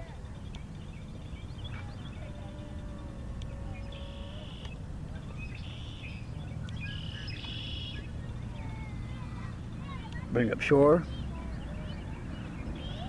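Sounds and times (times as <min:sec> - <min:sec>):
buzzy bird trills: 0:00.0 - 0:10.0
birds calling: 0:00.0 - 0:13.0.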